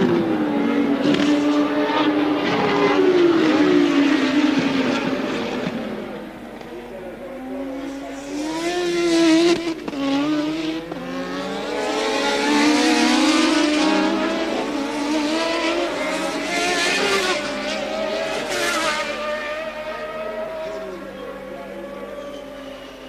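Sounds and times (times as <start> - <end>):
racing cars passing at speed: 0.0 - 23.0.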